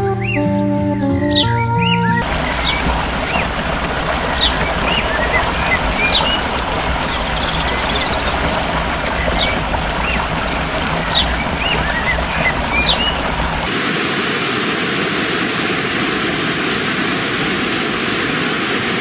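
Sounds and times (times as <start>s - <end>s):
bird chirps and whistles: 0.2s - 2.2s
steady rushing noise: 2.2s - 19.0s.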